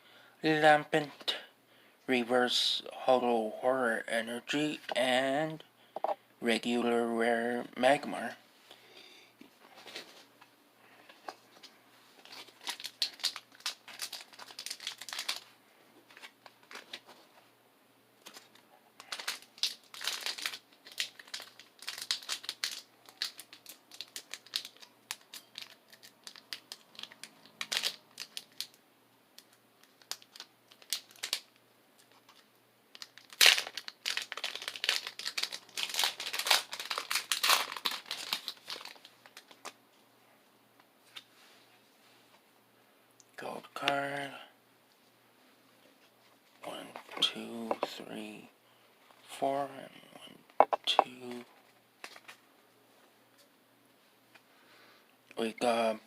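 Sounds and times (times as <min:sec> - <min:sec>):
foil wrapper crinkling and tearing: 0:12.2 - 0:15.5, 0:16.1 - 0:17.1, 0:18.2 - 0:28.8, 0:29.4 - 0:39.8, 0:52.0 - 0:52.4.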